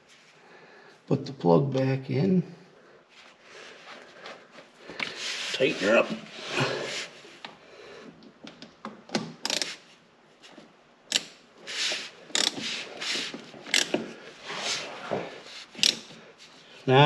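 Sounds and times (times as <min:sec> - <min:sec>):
wrench clicking on metal: 0:09.4 - 0:09.7, 0:11.1 - 0:11.4, 0:12.3 - 0:12.6, 0:13.7 - 0:14.0, 0:15.8 - 0:16.1.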